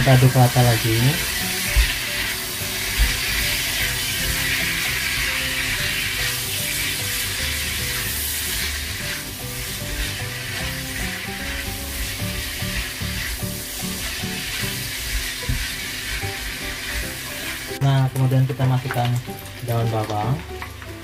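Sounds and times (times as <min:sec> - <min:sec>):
food sizzling in a wok: 0:00.0 - 0:21.0
spatula scraping and knocking pan: 0:01.2 - 0:17.7.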